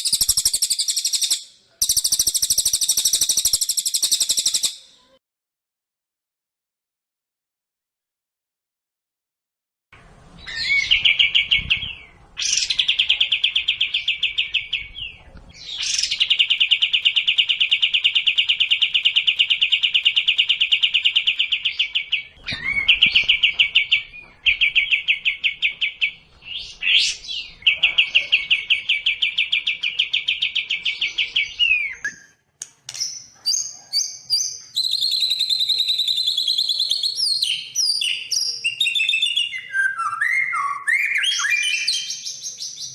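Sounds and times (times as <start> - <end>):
bird chirps and whistles: 0.0 - 4.9, 28.6 - 32.3, 33.0 - 42.9
songbird fast trills: 0.0 - 4.9.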